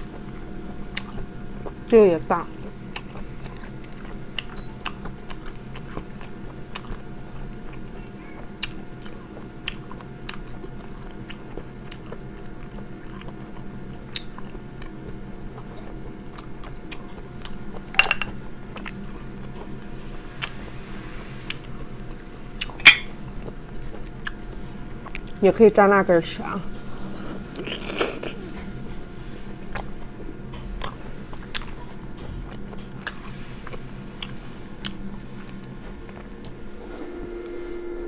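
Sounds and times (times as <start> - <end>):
faint steady hum: 0.0 - 38.0
person chewing wet smacks: 0.1 - 1.8, 2.6 - 17.9, 29.7 - 36.6.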